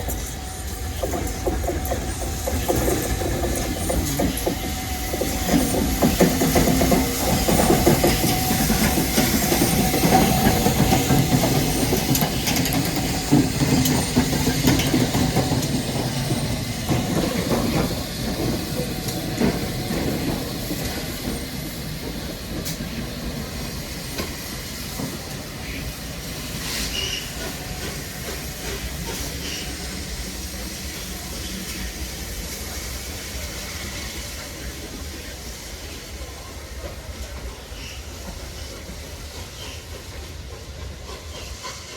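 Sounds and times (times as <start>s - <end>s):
wheel and rail clatter: 0.0s - 25.8s
steam hissing: 0.0s - 41.9s
steam train passing: 0.0s - 41.9s.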